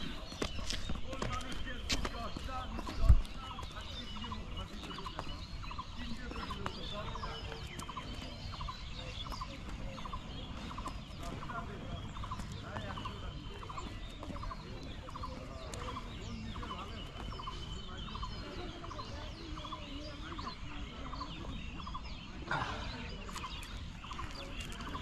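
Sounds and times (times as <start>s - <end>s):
birds chirping: 0.0s - 25.0s
wind rumble on microphone: 2.2s - 12.6s.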